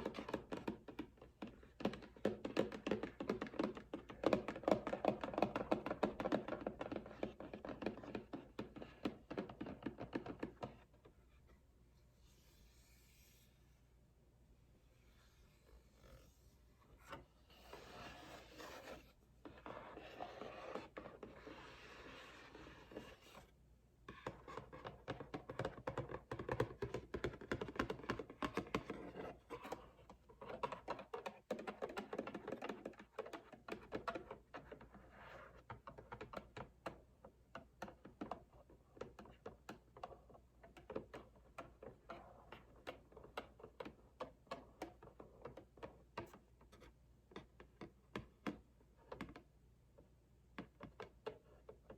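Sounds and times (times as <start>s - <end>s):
fingernail tapping on cardboard: 0.0s - 10.8s, 24.1s - 49.4s.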